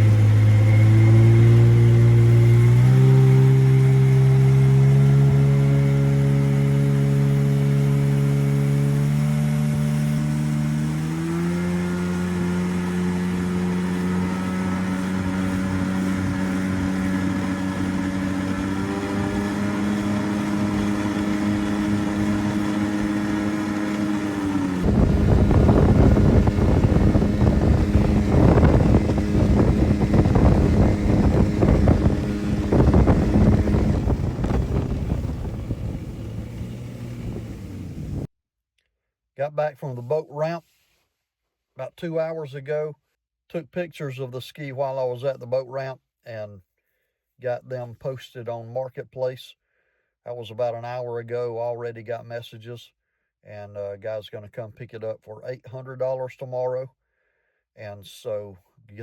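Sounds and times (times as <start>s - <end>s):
jet ski engine idling: 0.0s - 11.3s, 12.2s - 38.3s
rough gusty noise: 24.8s - 38.3s.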